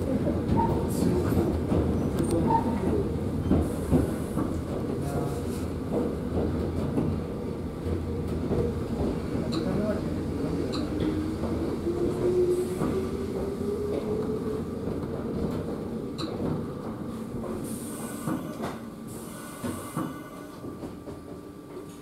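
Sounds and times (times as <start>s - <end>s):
electric train slowing: 10.6s - 15.2s.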